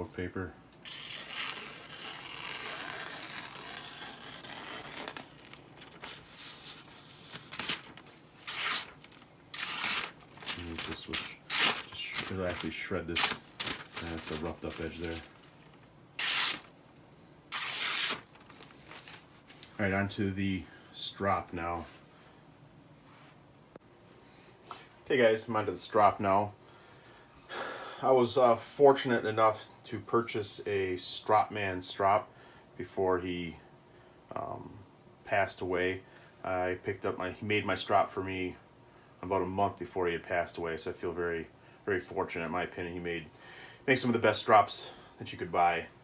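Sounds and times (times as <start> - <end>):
knife slicing through paper: 0.9 - 15.6, 16.2 - 16.7, 17.5 - 19.6
paper rustling: 0.9 - 16.7, 17.5 - 19.8.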